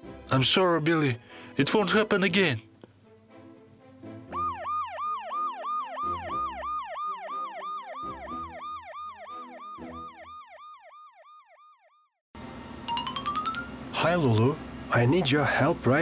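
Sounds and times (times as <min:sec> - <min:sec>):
soft background music: 0:00.0 - 0:05.0
siren yelping: 0:04.3 - 0:12.2.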